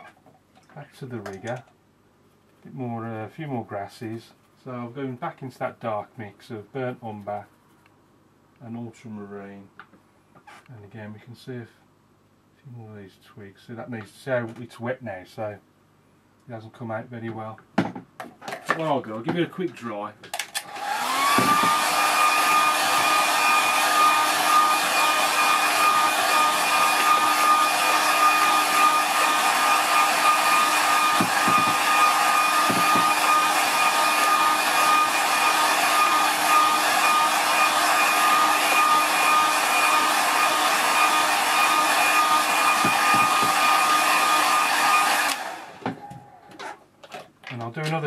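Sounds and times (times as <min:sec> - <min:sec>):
hair dryer whining: 0:20.6 - 0:46.6.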